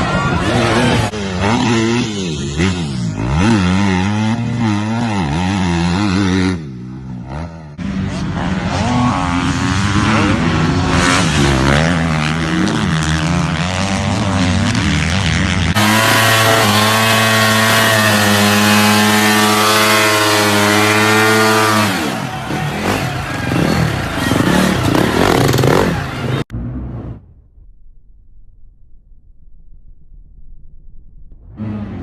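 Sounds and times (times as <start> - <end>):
dirt bike engines revving: 0.0 - 27.2.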